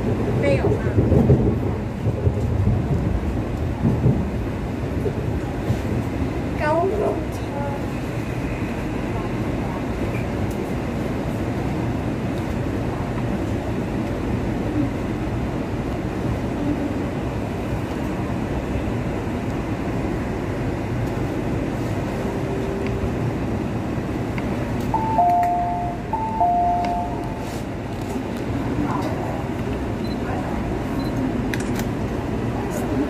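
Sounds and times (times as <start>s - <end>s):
train running rumble: 0.0s - 33.0s
two-note falling chime: 25.0s - 27.4s.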